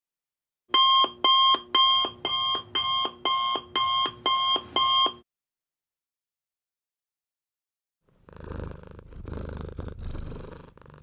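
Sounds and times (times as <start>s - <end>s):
electronic alarm beeping: 0.7s - 5.2s.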